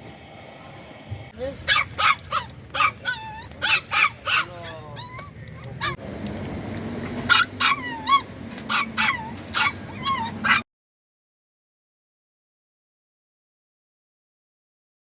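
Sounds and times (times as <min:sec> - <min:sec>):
low steady hum: 0:00.0 - 0:10.6
dogs barking and yelping: 0:01.6 - 0:06.0, 0:07.0 - 0:10.7
dogs whining: 0:01.7 - 0:06.0, 0:07.0 - 0:10.6.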